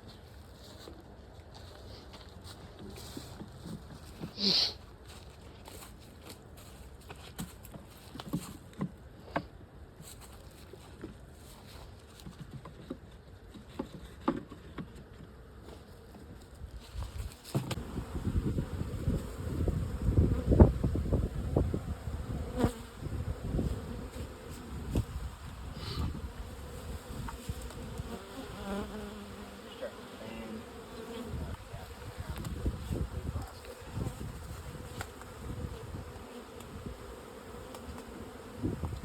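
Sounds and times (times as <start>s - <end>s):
honeybees buzzing: 17.4s - 39.0s.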